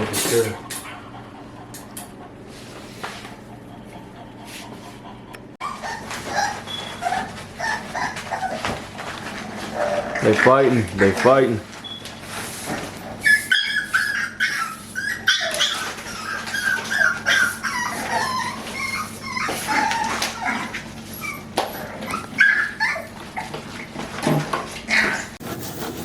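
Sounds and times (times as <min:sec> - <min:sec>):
puppies yelping and whimpering: 0:04.3 - 0:10.3, 0:13.0 - 0:25.4.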